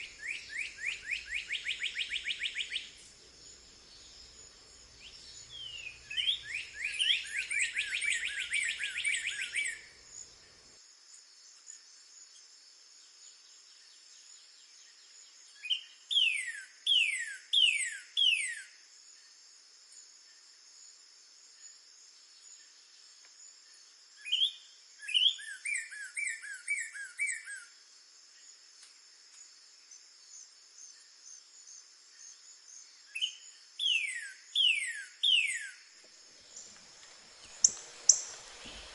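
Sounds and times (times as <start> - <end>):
cardinal singing whistled phrases: 0.0 - 3.0, 5.6 - 9.8, 33.2 - 35.8.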